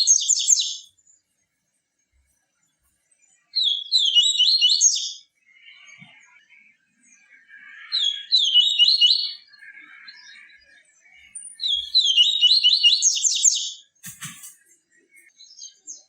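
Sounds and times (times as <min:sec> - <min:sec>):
sharp click: 0:14.0 - 0:14.7.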